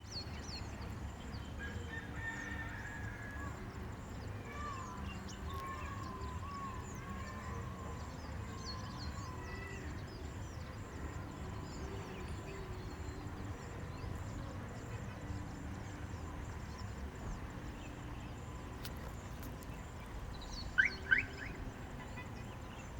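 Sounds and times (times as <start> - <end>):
lower wavering bird notes: 20.3 - 22.7
high bird chirps: 20.4 - 22.2.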